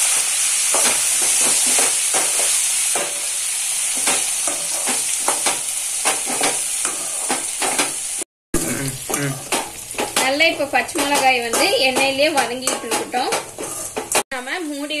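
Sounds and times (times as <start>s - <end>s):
chillies sizzling in oil: 0.0s - 15.0s
ladle scraping metal pan: 12.4s - 14.2s.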